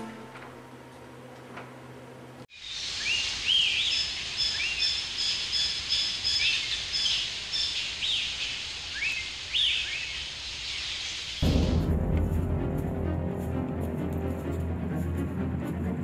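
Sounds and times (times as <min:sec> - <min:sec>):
steady background hiss: 0:00.1 - 0:11.4
high whistled bird notes: 0:02.5 - 0:10.2
birds chirping: 0:02.5 - 0:11.4
music: 0:11.4 - 0:16.0.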